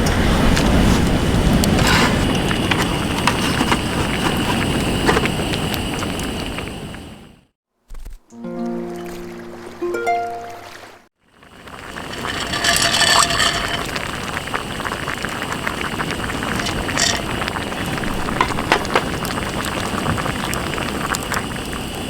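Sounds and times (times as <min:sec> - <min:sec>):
rushing sea wind: 0:00.0 - 0:07.4
campfire crackling and popping: 0:00.5 - 0:07.3, 0:11.5 - 0:22.0.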